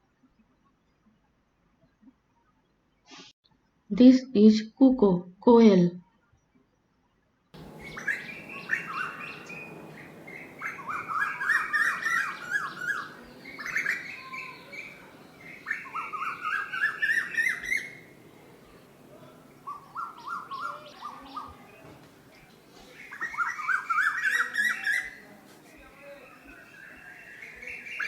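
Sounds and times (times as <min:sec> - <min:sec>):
faint high bird chirps: 0:07.6 - 0:28.0
koel calling: 0:07.6 - 0:28.0.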